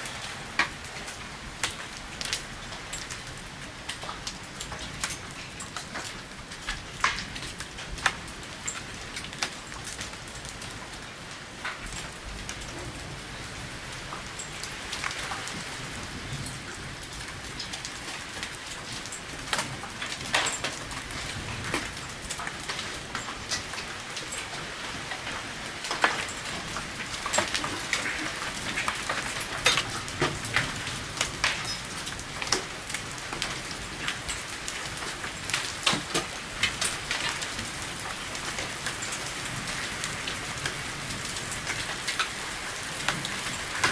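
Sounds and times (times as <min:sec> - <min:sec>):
hailstones striking hard surfaces: 0:17.5 - 0:43.9.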